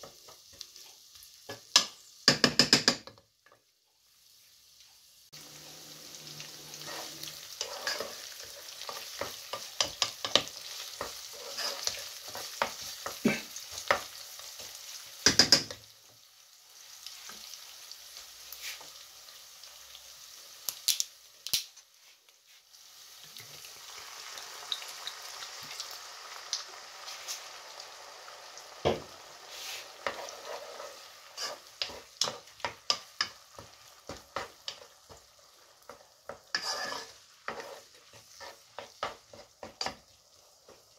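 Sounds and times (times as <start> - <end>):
sausage sizzling in a pot: 0.0 - 40.9
wooden spoon scraping a pot: 6.6 - 14.7, 29.5 - 35.2, 35.9 - 40.0.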